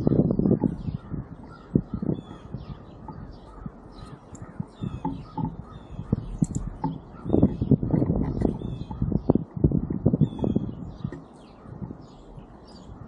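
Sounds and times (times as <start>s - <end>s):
high bird chirps: 0.0s - 9.4s, 10.2s - 13.0s
harsh bird calls: 0.0s - 13.0s
soft low knocks: 4.4s - 11.9s.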